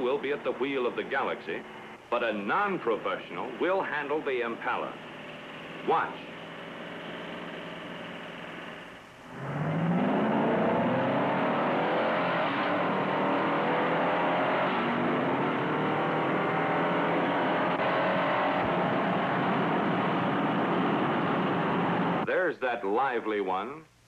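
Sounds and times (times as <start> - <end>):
car engines accelerating hard: 9.3 - 22.2.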